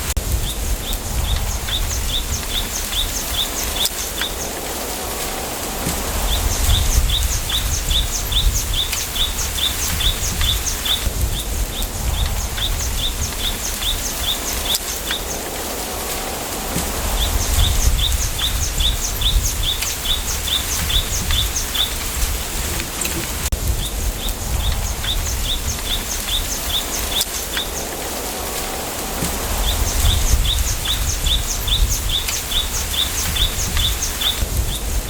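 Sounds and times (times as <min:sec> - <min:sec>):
wind rustling bamboo: 0:00.0 - 0:35.0
small bird chirping: 0:05.9 - 0:15.5, 0:16.8 - 0:28.0, 0:29.3 - 0:35.0.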